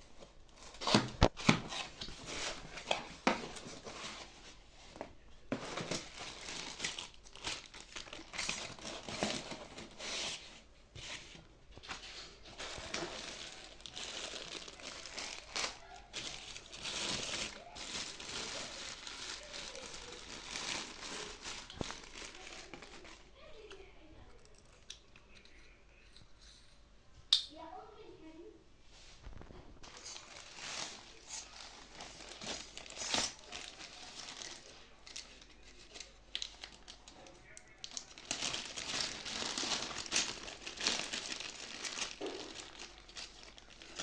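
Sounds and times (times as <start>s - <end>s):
scraping rustling handling noise: 0.1s - 23.7s, 28.9s - 36.7s.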